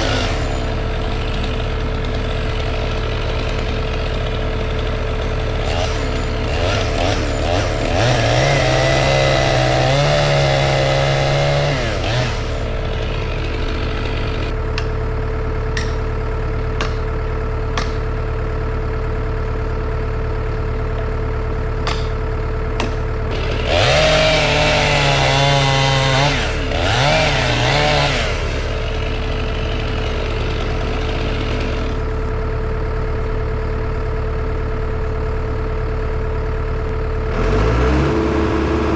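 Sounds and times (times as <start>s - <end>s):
chainsaw revving: 0.0s - 14.9s, 22.8s - 32.4s, 36.8s - 38.9s.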